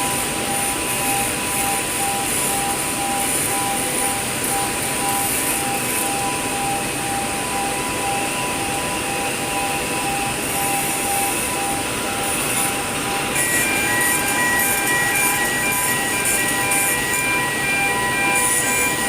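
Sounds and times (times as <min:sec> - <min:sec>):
welding hiss: 0:00.0 - 0:06.3, 0:10.4 - 0:19.0.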